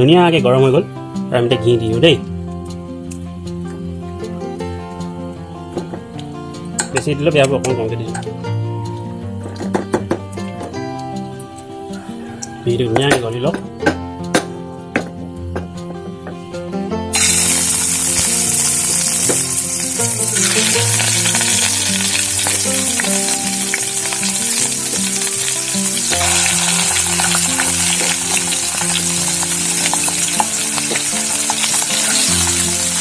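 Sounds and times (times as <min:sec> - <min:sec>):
chicken frying sizzle: 0:17.1 - 0:33.0.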